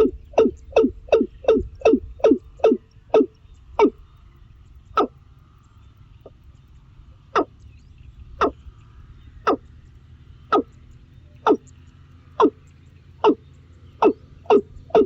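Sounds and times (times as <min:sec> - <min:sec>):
bird calling with descending notes: 0:00.0 - 0:04.2, 0:07.3 - 0:15.0.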